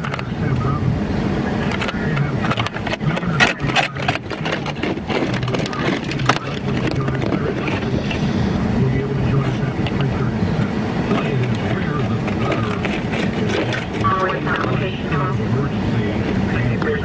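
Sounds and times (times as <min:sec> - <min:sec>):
car engine and road drone: 0:00.0 - 0:17.0
sharp clicks and crackles: 0:01.6 - 0:08.2, 0:11.1 - 0:15.1.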